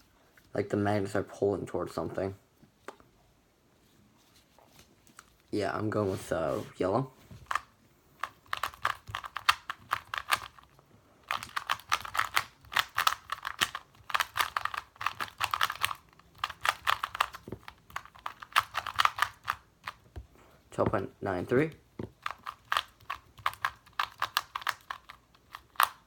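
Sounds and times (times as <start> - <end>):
fast plastic clicking of a cube: 7.4 - 20.2, 21.7 - 26.0.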